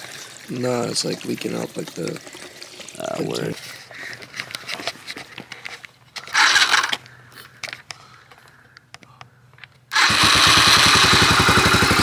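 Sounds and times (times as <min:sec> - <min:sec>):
handling noises: 0:03.4 - 0:09.9
dirt bike engine idling: 0:09.9 - 0:12.0.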